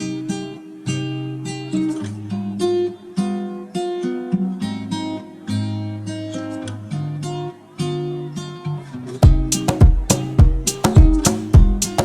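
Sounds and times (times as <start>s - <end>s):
acoustic guitar strumming: 0.0s - 12.0s
bass line: 9.2s - 12.0s.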